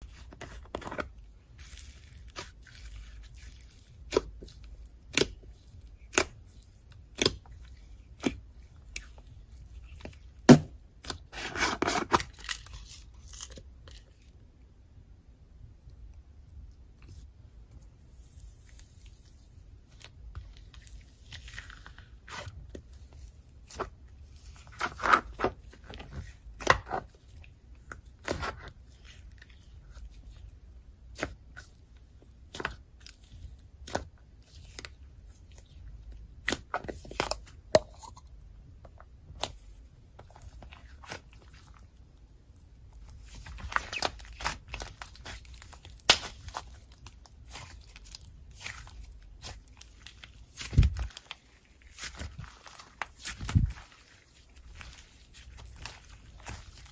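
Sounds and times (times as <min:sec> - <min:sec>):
sticky slime pops and crackles: 0:43.4 - 0:46.8.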